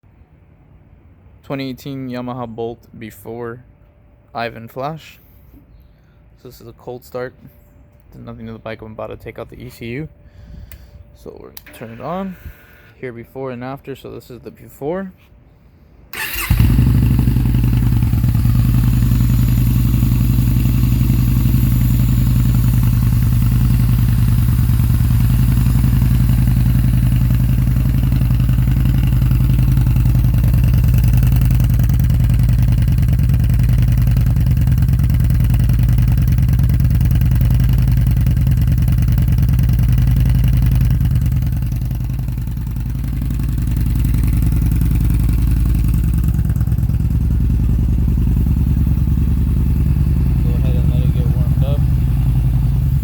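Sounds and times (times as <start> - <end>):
motorcycle engine idling: 16.2 - 53.0.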